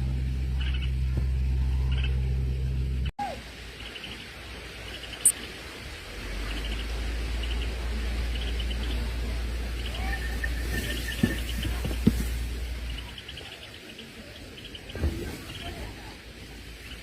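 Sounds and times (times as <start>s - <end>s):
faint low rumble: 0.0s - 4.0s, 4.8s - 13.6s
steady low hum: 0.0s - 13.5s
small birds chirping: 0.4s - 5.7s, 6.3s - 17.0s.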